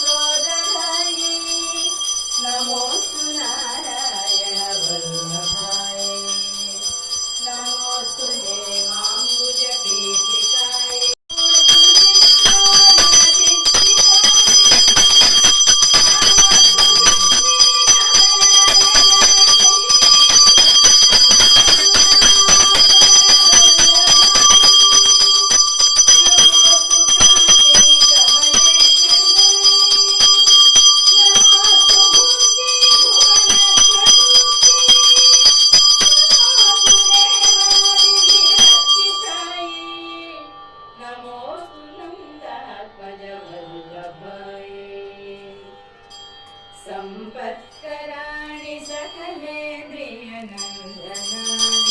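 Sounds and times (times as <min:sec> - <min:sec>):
hand bell ringing rapidly: 0:00.0 - 0:39.6, 0:50.6 - 0:51.9.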